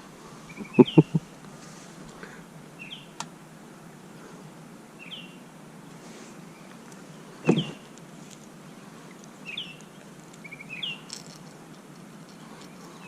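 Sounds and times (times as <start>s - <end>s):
bird calling: 0.5s - 1.3s, 7.3s - 8.0s.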